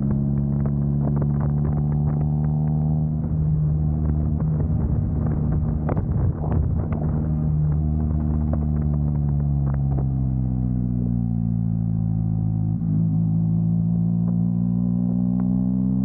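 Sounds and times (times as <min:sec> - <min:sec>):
car engine running: 0:00.0 - 0:15.5.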